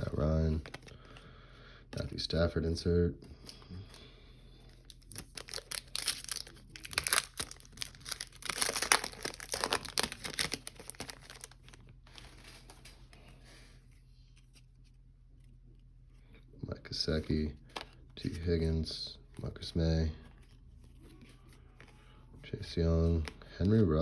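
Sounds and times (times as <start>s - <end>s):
foil wrapper tearing and crinkling: 4.8s - 11.8s.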